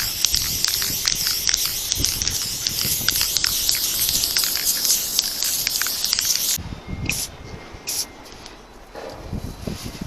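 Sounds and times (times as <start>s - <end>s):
spray paint can hissing: 0.0s - 7.3s, 7.9s - 8.1s.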